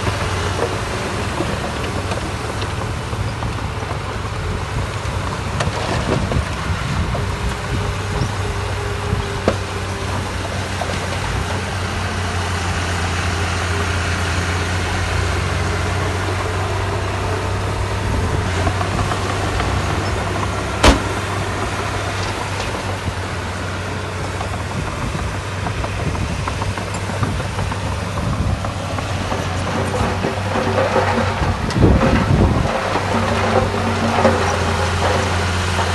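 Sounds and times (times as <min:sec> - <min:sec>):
diesel machinery engine hum: 0:00.0 - 0:35.9
sharp bang: 0:20.8 - 0:21.2.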